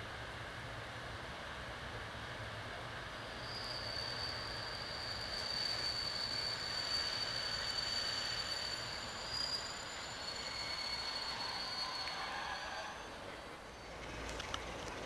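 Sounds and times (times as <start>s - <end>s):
train rumble: 0.0s - 15.0s
distant train squealing: 3.2s - 14.8s.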